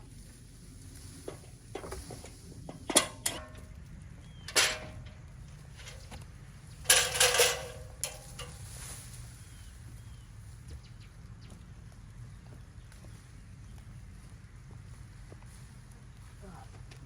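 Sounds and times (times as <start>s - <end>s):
metal clanking and clinking: 1.7s - 3.7s, 4.4s - 6.2s, 6.8s - 8.7s.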